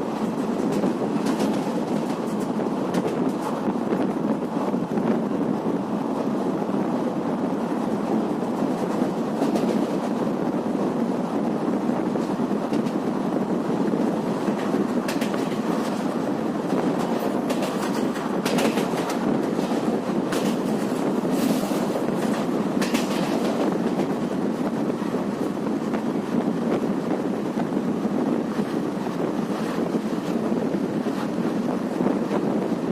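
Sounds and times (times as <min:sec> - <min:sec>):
train wheels on rails: 0:00.0 - 0:32.9
clicks over rail joints: 0:14.5 - 0:16.1, 0:16.8 - 0:24.1.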